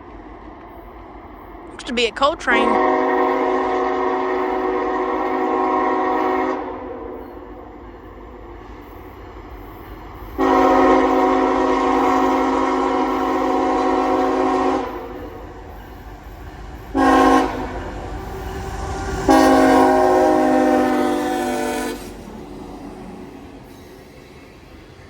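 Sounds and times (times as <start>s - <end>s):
low rumble of train: 0.0s - 1.7s, 2.8s - 25.0s
locomotive air horn blasts: 10.4s - 14.9s.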